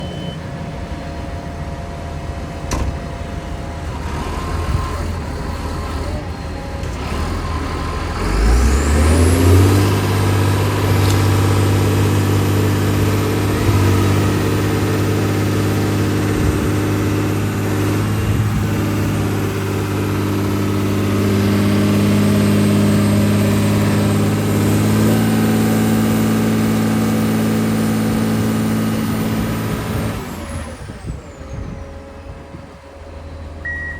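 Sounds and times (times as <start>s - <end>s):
diesel engine running and revving: 0.0s - 33.9s
high whine: 33.6s - 33.9s.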